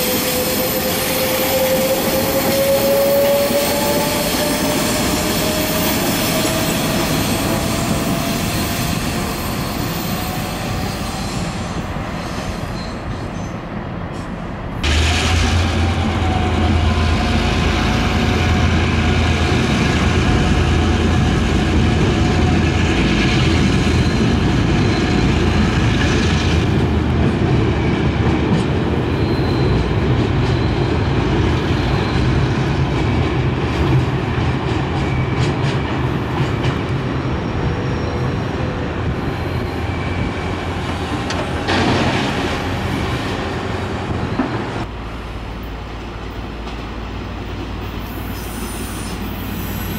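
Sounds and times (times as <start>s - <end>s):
faint wheel squeal: 9.2s - 13.6s, 29.1s - 29.8s, 48.0s - 49.9s.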